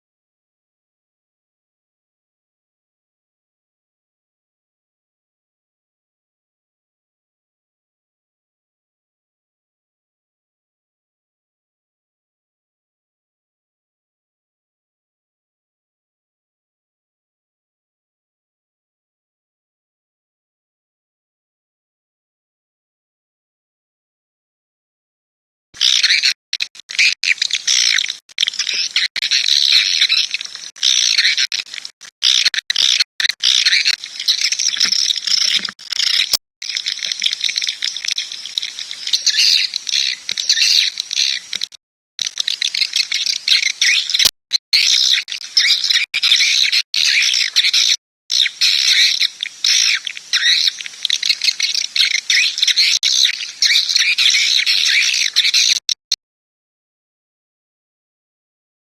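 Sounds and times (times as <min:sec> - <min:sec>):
swiftlet calls chattering: 0:25.8 - 0:55.9.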